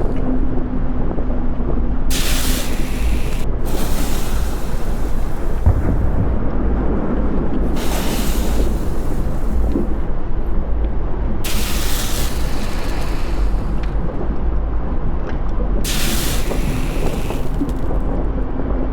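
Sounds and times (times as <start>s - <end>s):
volcanic eruption rumbling: 0.0s - 18.9s
high hiss bursts: 2.1s - 6.2s, 7.7s - 9.9s, 11.5s - 13.8s, 15.9s - 17.9s.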